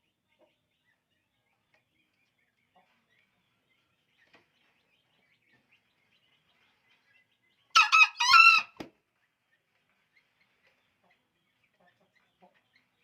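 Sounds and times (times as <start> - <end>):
junglefowl crowing: 7.8 - 8.8.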